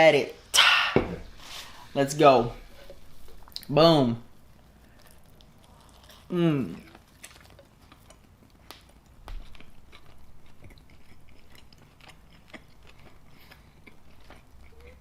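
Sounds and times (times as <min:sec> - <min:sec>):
person chewing a burger: 0:02.6 - 0:03.7, 0:04.3 - 0:15.0.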